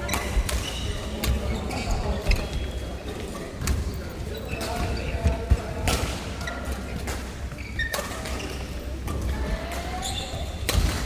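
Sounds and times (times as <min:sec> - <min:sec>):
shoe squeaks: 0:00.2 - 0:02.8, 0:07.6 - 0:08.8, 0:09.9 - 0:10.6.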